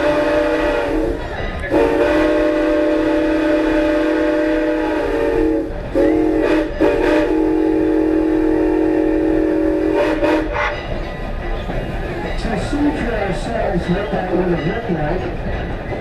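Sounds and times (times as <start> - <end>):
steam locomotive chime whistle: 0.0 - 11.0.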